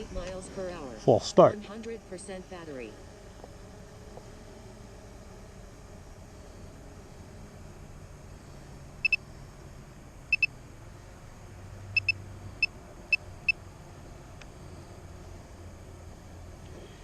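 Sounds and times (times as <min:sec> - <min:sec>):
short electronic beeps: 0:10.3 - 0:10.5, 0:12.0 - 0:12.7.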